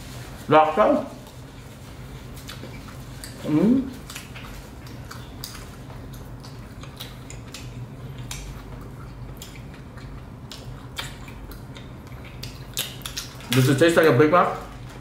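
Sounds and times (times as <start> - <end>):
steady low hum: 0.0 - 15.0
wet chewing mouth sounds: 2.3 - 13.6.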